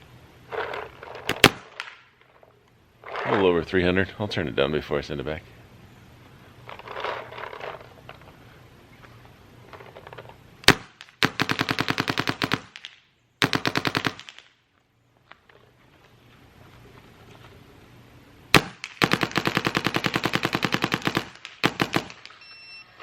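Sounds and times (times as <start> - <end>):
paintball marker firing: 1.3 - 2.1, 10.6 - 14.6, 18.5 - 22.4.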